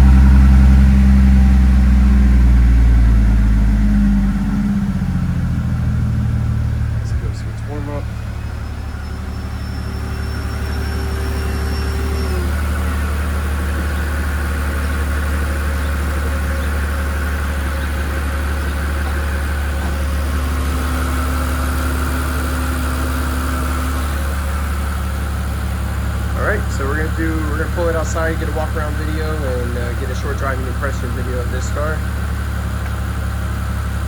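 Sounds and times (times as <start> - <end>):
car engine idling: 0.0 - 34.0
faint high whine: 7.1 - 13.6.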